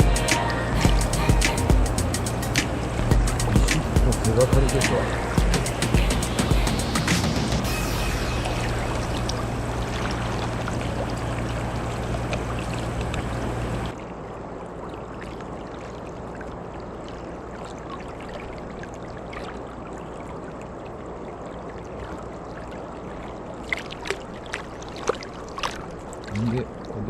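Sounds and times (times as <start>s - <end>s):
low hum of background music: 0.0s - 13.9s
river water rushing: 0.0s - 14.0s.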